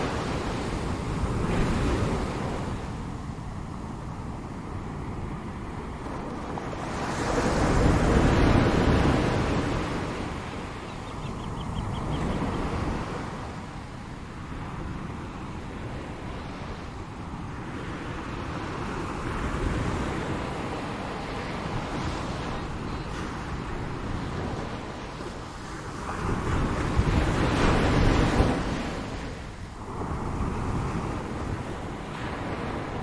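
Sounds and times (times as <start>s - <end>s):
ocean waves washing in: 0.0s - 33.0s.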